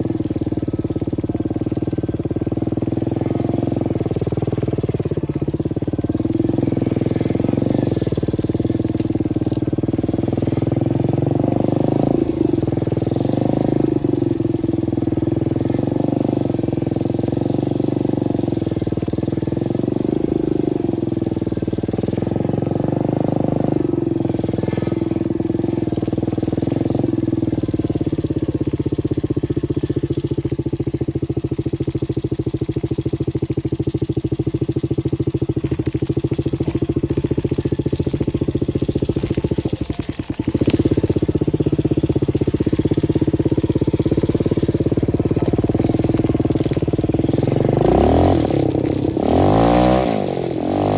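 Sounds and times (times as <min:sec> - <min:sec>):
dirt bike engine running: 0:00.0 - 0:50.9.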